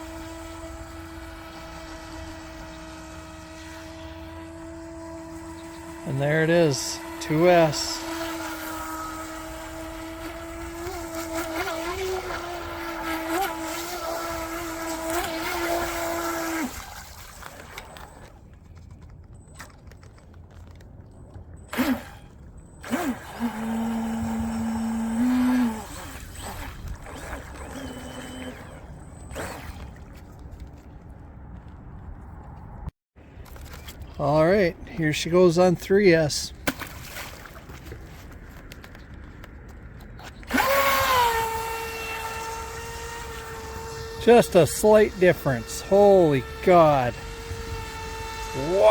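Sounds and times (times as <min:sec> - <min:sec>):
high-pitched electric motor whine: 0:00.0 - 0:18.4, 0:21.7 - 0:30.2, 0:40.2 - 0:48.9.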